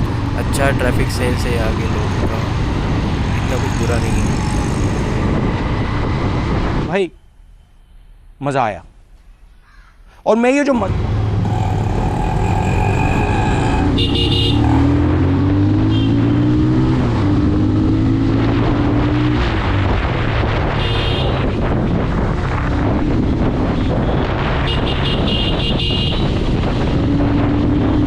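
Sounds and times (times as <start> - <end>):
wind rush: 0.0 - 7.0, 16.4 - 28.0
motorcycle engine accelerating: 10.9 - 20.8
vehicle horn beeps: 14.0 - 14.6.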